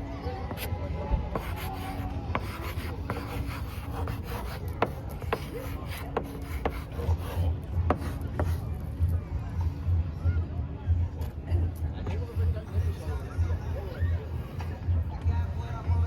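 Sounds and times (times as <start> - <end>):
rubbing against microphone: 1.3 - 8.6.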